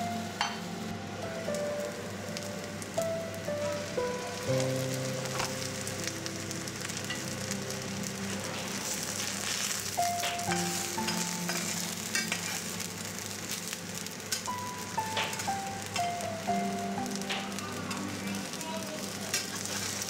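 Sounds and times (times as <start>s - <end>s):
soft melody: 0.0s - 20.0s
fritters sizzling in oil: 3.6s - 20.0s.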